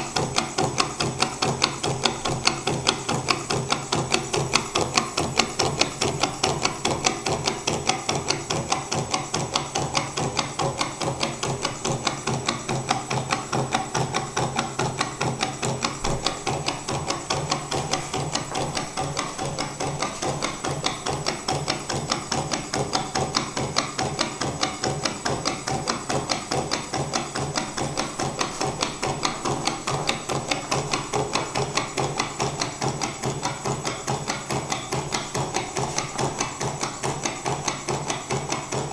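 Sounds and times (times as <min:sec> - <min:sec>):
stirling engine knocking: 0:00.0 - 0:38.9.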